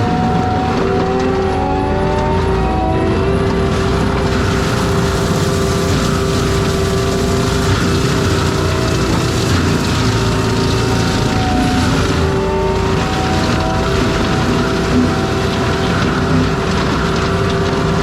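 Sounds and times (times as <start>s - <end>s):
forestry mulcher working: 0.0s - 18.0s.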